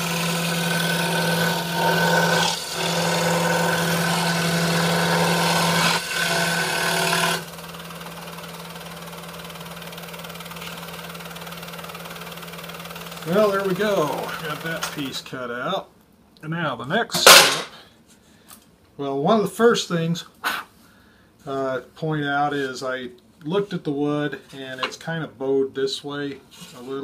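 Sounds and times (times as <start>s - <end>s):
scroll saw motor humming: 0.0s - 15.1s
scroll saw cutting wood: 0.0s - 15.2s.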